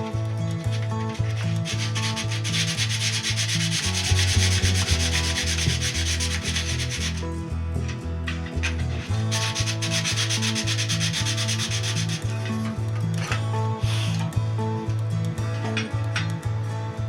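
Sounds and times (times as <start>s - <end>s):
background music with bass line: 0.0s - 17.0s
abrasive sanding rubbing: 0.6s - 7.4s, 8.4s - 12.8s.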